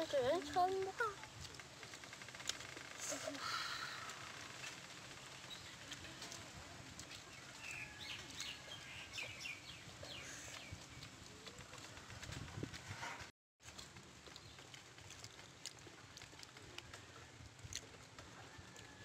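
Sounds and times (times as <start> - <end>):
birds chirping: 5.2 - 6.0, 7.0 - 12.2.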